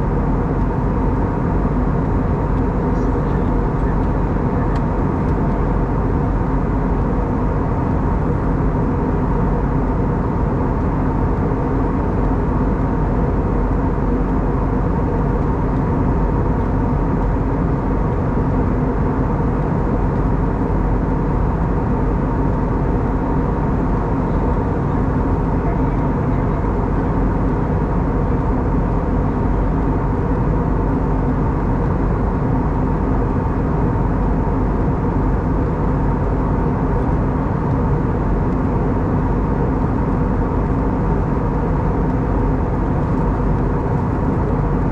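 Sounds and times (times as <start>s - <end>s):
rush of air in aircraft cabin: 0.0s - 44.9s
steady engine tones: 12.0s - 44.9s.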